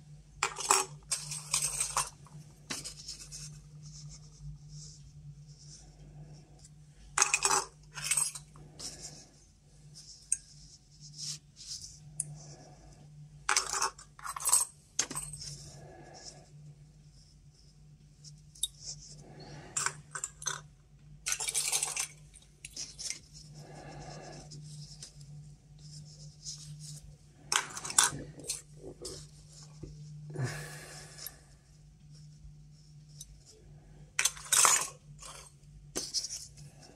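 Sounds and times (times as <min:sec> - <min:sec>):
faint low hum: 0:00.0 - 0:36.9
tubes clinking and scraping on table: 0:00.4 - 0:03.2, 0:07.2 - 0:08.5, 0:13.5 - 0:15.6.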